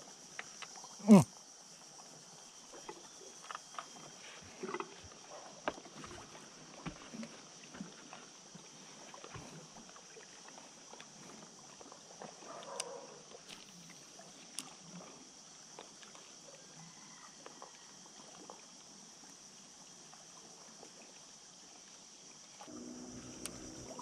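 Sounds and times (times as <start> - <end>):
light water sounds: 0.1 - 24.0
high insect drone: 22.6 - 24.0.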